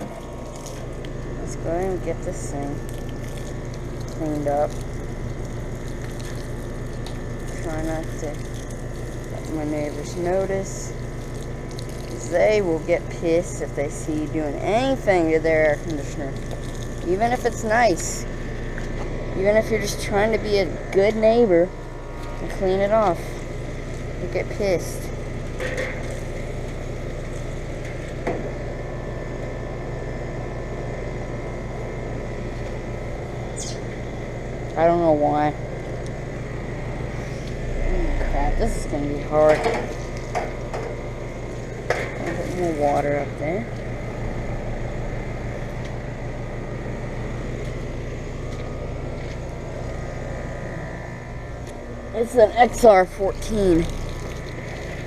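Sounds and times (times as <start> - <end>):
hose spraying water: 0.0 - 18.2, 52.2 - 55.0
air conditioner unit humming: 0.0 - 55.0.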